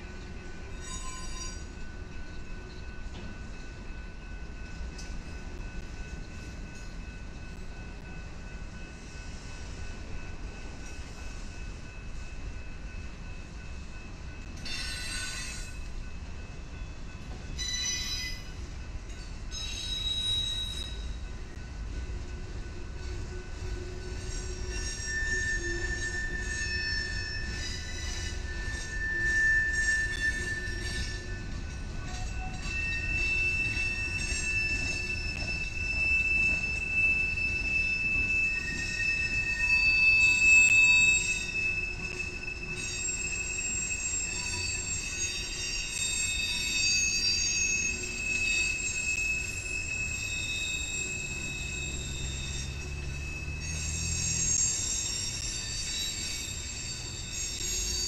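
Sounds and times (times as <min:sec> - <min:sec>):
freight train rumble: 0:00.0 - 0:58.0
train wheels squealing: 0:00.0 - 0:58.0.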